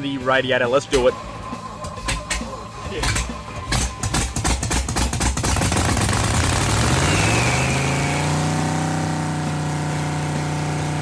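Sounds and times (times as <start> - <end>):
engine starting and idling: 1.0 - 7.8
high squeal: 6.7 - 8.5.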